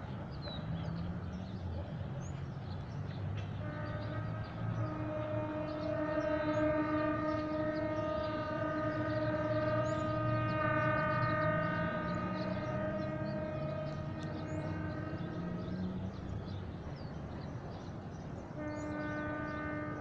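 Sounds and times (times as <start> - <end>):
locomotive engine rumble: 0.0 - 20.0
birds chirping: 0.1 - 20.0
locomotive air horn blast: 3.6 - 16.5, 18.6 - 20.0.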